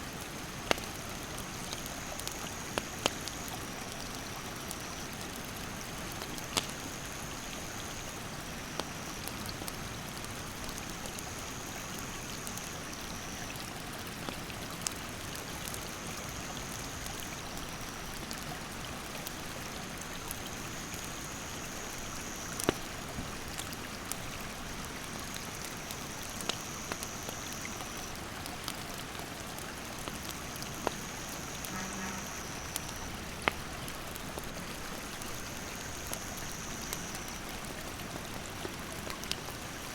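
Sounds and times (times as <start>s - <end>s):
campfire crackling: 0.0s - 39.9s
insect trilling: 30.3s - 33.3s, 35.2s - 37.5s.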